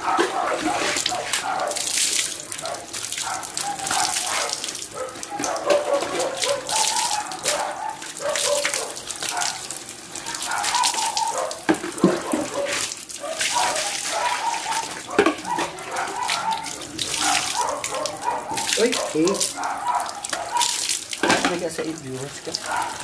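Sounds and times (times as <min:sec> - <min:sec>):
tap water splashing: 0:00.0 - 0:23.0.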